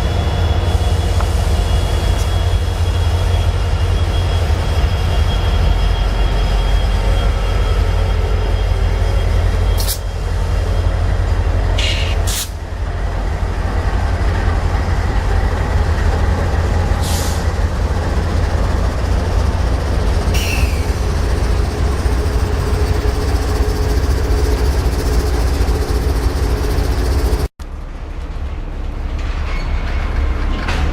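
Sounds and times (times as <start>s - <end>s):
train rumbling by: 0.0s - 30.9s.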